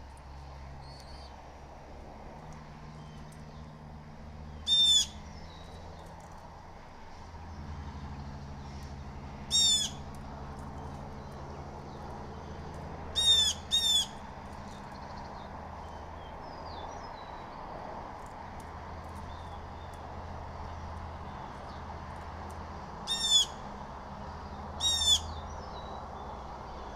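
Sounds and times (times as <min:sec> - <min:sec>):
blue jay calls: 0:00.8 - 0:01.4, 0:04.6 - 0:05.8, 0:09.5 - 0:10.2, 0:13.1 - 0:15.2, 0:23.0 - 0:23.7, 0:24.8 - 0:26.0
small birds chirping: 0:00.8 - 0:01.4, 0:04.5 - 0:06.3, 0:07.4 - 0:26.9.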